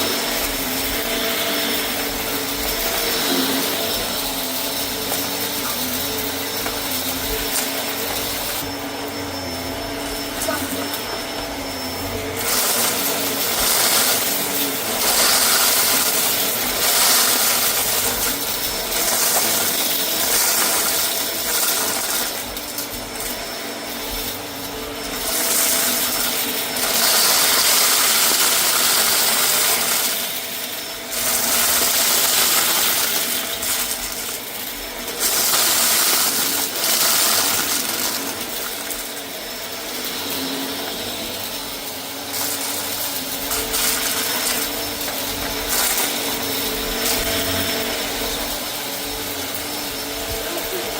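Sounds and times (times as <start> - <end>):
debris being sucked up: 0.0 - 23.4, 35.1 - 50.9
vacuum cleaner on a rug: 0.0 - 50.9.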